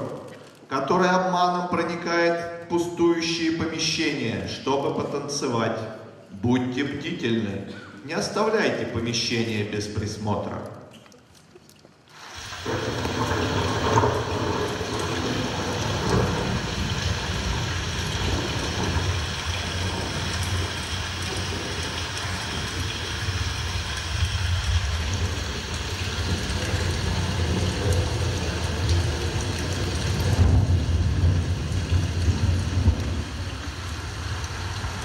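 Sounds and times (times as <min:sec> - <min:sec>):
heavy rain: 0:12.1 - 0:35.0
low rumble: 0:12.7 - 0:35.0.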